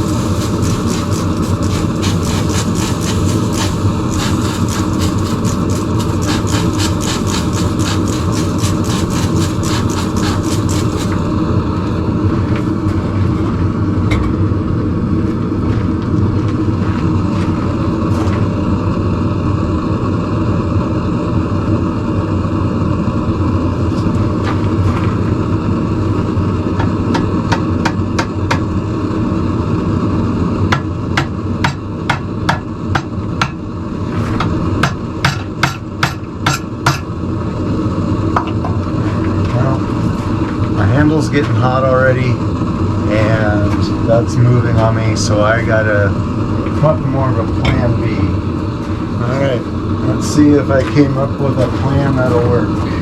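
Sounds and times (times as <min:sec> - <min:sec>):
hammer striking hot steel: 0:00.0 - 0:11.4, 0:26.8 - 0:28.8, 0:30.7 - 0:33.6, 0:34.2 - 0:37.2
steady drone: 0:00.0 - 0:53.0.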